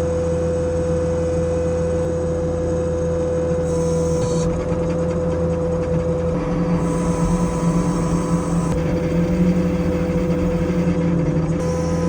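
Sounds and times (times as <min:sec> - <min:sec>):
heavy equipment engine droning: 0:03.7 - 0:12.0.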